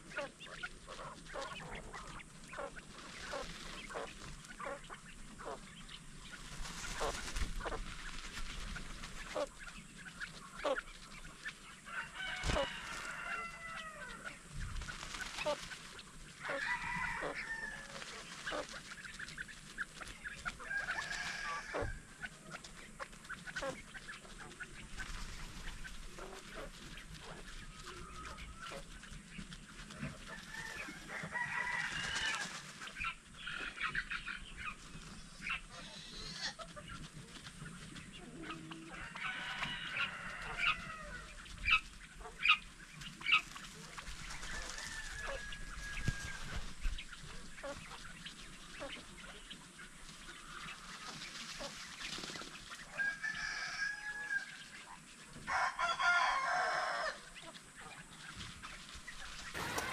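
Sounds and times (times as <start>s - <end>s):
fowl clucking: 0.0s - 8.0s, 8.6s - 14.5s, 15.1s - 29.0s, 38.2s - 46.6s, 59.5s - 59.9s
rooster crowing: 11.9s - 14.2s, 16.5s - 18.0s, 20.6s - 22.0s, 30.3s - 32.6s, 39.0s - 41.3s, 44.6s - 46.6s, 53.0s - 54.5s, 55.5s - 57.3s, 59.6s - 59.9s.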